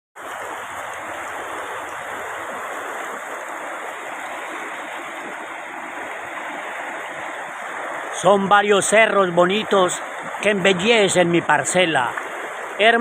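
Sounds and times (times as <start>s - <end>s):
stream water rushing: 0.2s - 13.0s.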